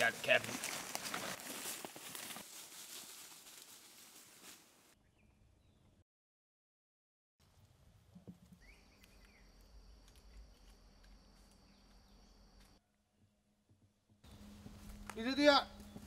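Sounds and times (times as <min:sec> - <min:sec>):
faint outdoor ambience: 0:07.4 - 0:13.1, 0:13.7 - 0:16.0.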